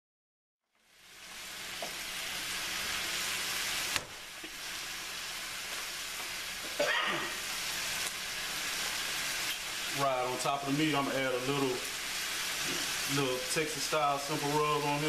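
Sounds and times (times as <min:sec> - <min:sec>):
meat and vegetables sizzling in a pan: 0:00.7 - 0:15.0.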